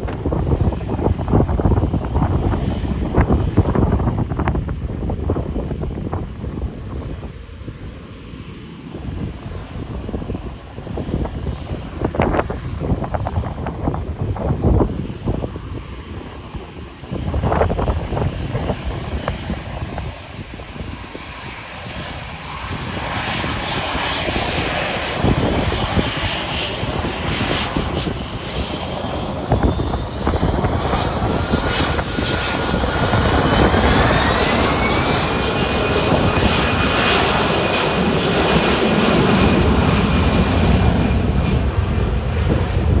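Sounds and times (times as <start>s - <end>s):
jet engine roar: 0.0s - 43.0s
jet engine whine: 0.0s - 43.0s.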